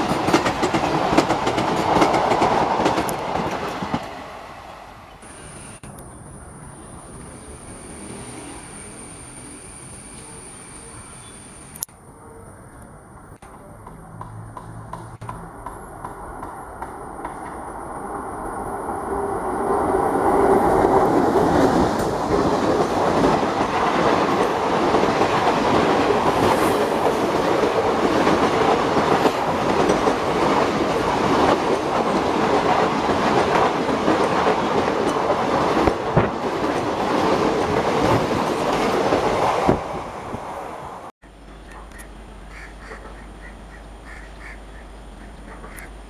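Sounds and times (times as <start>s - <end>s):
wheels clacking over rail joints: 0.0s - 4.2s, 20.4s - 39.9s
passenger train passing at speed: 0.0s - 46.0s.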